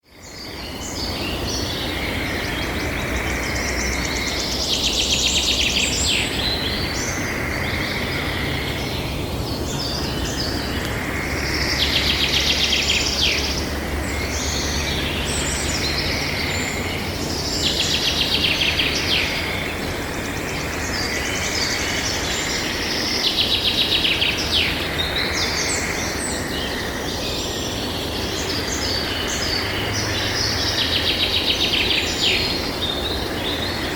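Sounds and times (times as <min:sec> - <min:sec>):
songbirds chirping: 0:00.0 - 0:33.9.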